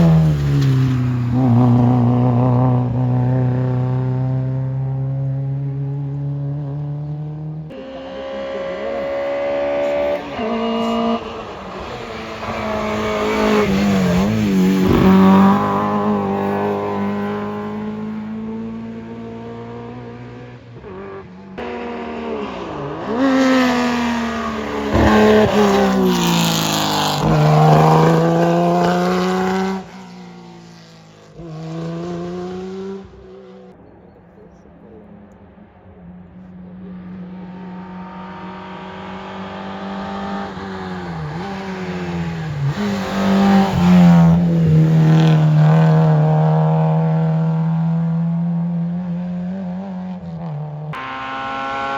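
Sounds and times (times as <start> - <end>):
rally car engines revving: 0.0 - 51.9.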